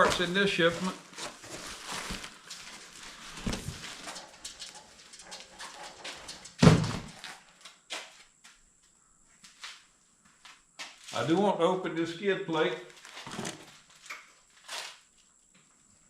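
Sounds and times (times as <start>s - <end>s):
packaging rustling: 0.0s - 4.2s, 12.9s - 15.0s
loud thump: 6.6s - 7.1s.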